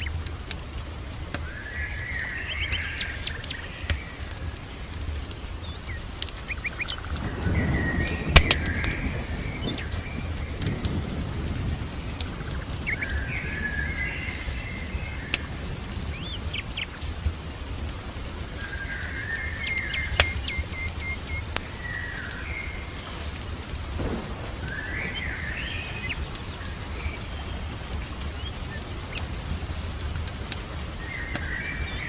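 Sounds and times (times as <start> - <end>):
songbird singing: 0.0 - 32.0
steady rain: 0.0 - 32.0
low rumble of thunder: 6.5 - 20.7, 21.5 - 32.0
sharp pops: 23.3 - 31.6.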